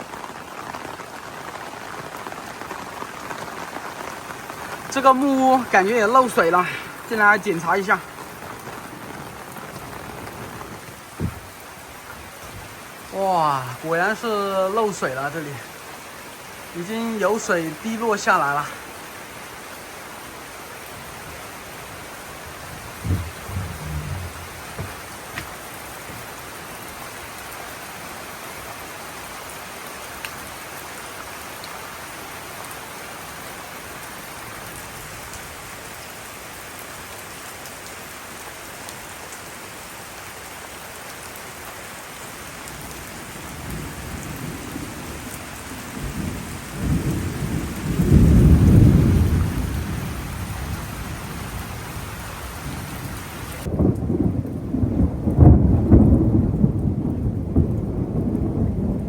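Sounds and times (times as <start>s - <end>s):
heavy rain: 0.0s - 59.0s
thunder rumbling: 21.0s - 26.4s, 45.8s - 51.7s, 53.5s - 59.0s.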